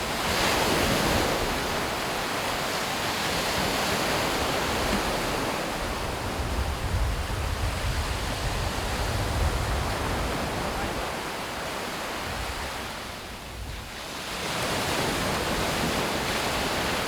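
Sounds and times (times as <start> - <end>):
waves breaking on beach: 0.0 - 17.0
wind rumbling on microphone: 3.6 - 11.2.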